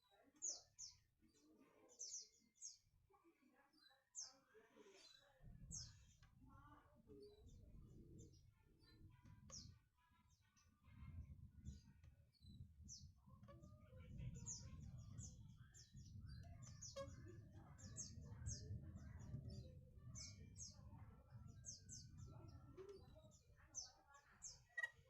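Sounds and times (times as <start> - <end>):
small birds chirping: 0.0 - 25.0
steady low rumble: 12.5 - 22.8.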